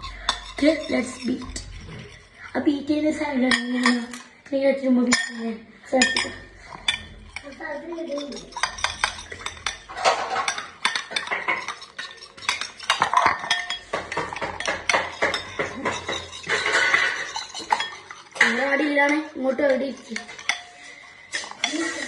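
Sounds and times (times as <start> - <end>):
metal spoon clinking against bowl: 0.0 - 2.5, 3.4 - 4.4, 5.1 - 22.0.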